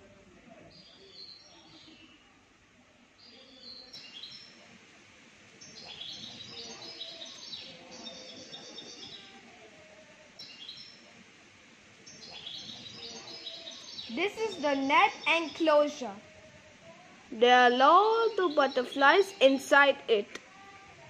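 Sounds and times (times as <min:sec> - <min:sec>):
birds chirping: 0:05.6 - 0:09.3, 0:12.0 - 0:16.2, 0:17.4 - 0:20.3.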